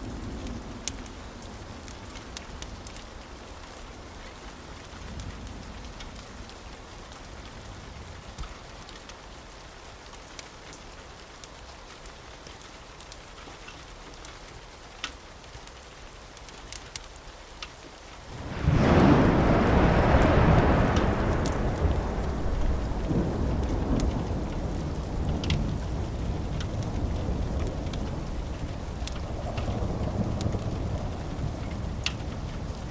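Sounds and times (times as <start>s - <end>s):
steady rain: 0.0s - 32.9s
wood fire crackling: 0.0s - 32.9s
low thunder rumble: 18.3s - 32.9s.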